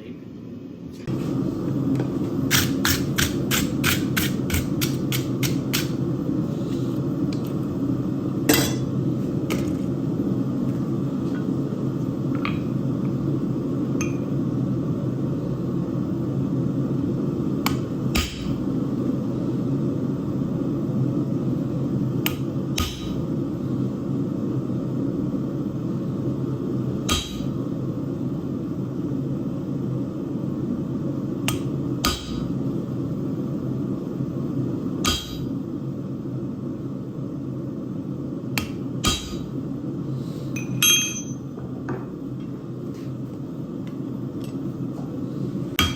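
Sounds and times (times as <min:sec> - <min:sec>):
hammer striking steel on anvil: 0:08.5 - 0:08.9, 0:17.6 - 0:18.6, 0:27.1 - 0:27.6, 0:31.5 - 0:32.4, 0:35.0 - 0:35.5, 0:38.6 - 0:39.5, 0:40.6 - 0:41.4.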